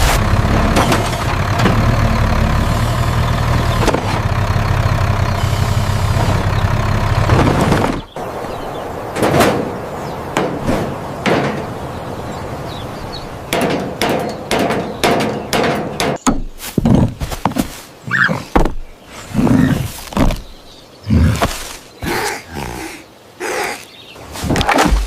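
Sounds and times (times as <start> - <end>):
sharp knocks and bangs: 0.0 - 4.6, 6.1 - 8.1, 9.1 - 11.9, 13.5 - 17.6
steady rumbling: 0.0 - 16.3
heavy thumps: 13.5 - 17.7.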